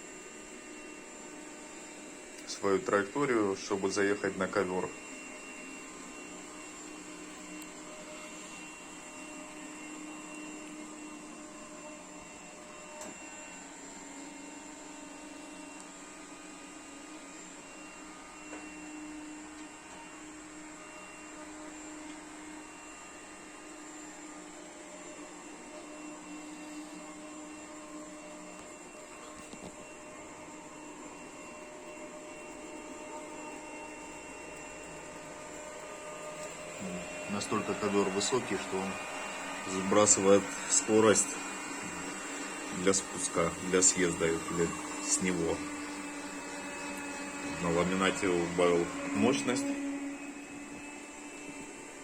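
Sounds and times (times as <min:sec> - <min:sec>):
robot vacuum hum: 0:00.0 - 0:52.0
thin constant whine: 0:25.8 - 0:50.8.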